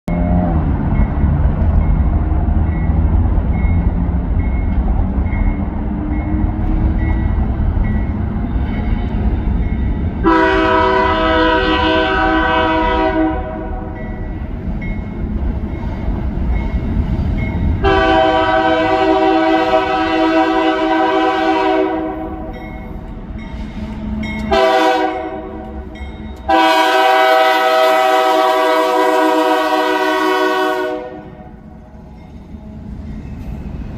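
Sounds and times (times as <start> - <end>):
diesel locomotive rumbling: 0.0 - 33.9
locomotive air horn blasts: 10.2 - 13.9, 17.8 - 22.5, 24.5 - 25.8, 26.5 - 31.5.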